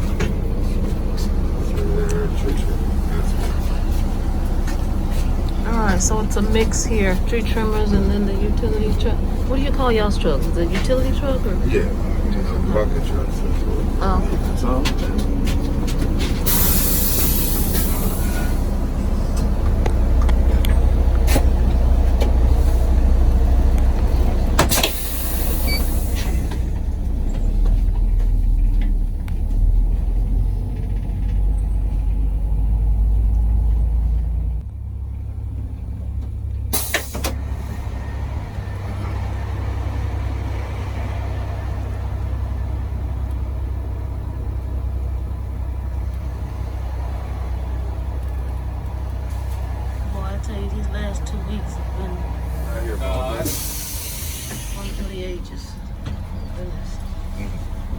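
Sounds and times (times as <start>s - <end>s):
bus engine and road noise: 0.0s - 57.9s
air brakes hissing: 16.2s - 19.1s, 24.6s - 26.8s, 36.7s - 38.0s, 52.4s - 55.4s.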